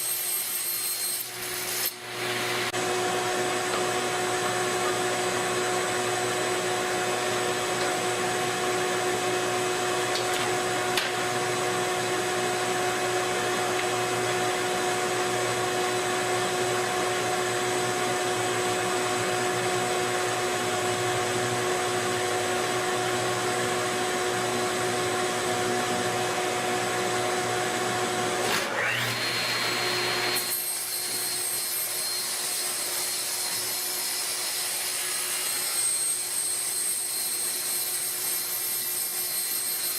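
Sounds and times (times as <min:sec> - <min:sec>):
power tool motor whine: 0:00.0 - 0:06.6, 0:27.8 - 0:39.9.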